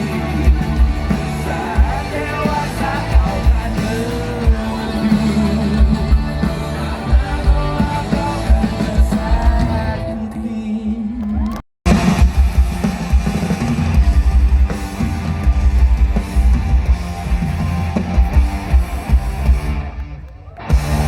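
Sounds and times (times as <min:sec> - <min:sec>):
rock band playing: 0:00.0 - 0:10.3, 0:11.9 - 0:21.0
person singing: 0:00.0 - 0:11.6.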